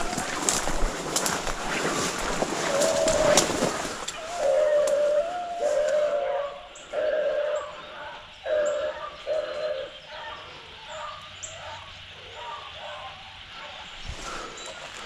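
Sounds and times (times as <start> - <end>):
beagles baying: 2.6 - 13.9.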